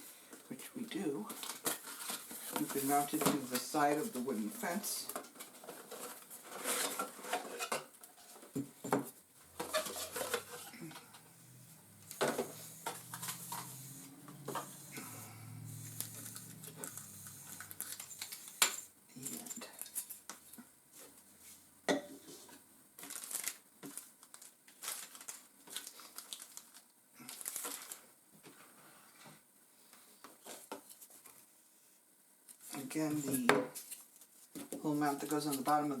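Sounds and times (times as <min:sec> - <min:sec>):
plastic packaging crinkling: 0:09.6 - 0:11.1, 0:15.8 - 0:20.4, 0:23.0 - 0:28.1.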